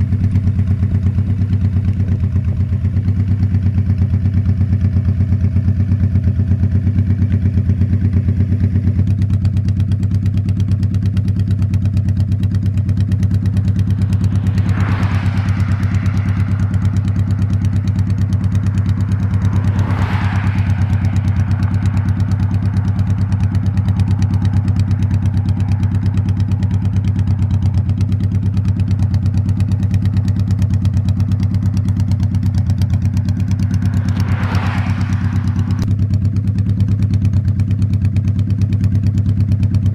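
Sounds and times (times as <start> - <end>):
motorcycle engine cruising: 0.0 - 39.9
brief whooshes: 12.7 - 24.5, 31.2 - 36.0.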